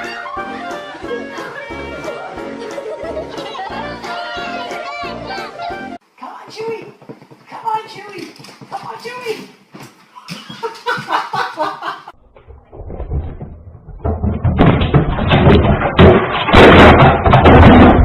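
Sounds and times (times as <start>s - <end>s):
loud rough banging: 12.2s - 18.0s.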